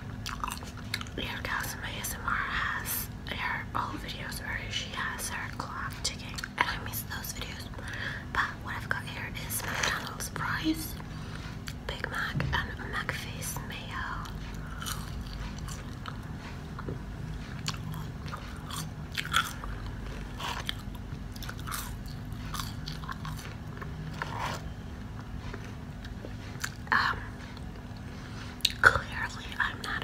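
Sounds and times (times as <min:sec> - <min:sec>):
low steady hum: 0:00.0 - 0:30.0
crunchy food chewing: 0:00.1 - 0:01.2, 0:14.1 - 0:29.0.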